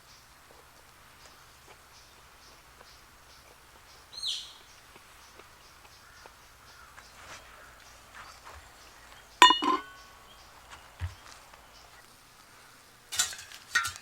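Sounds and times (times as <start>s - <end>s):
faint bird calls: 0.0s - 12.9s
sharp metallic clinks: 9.4s - 10.1s.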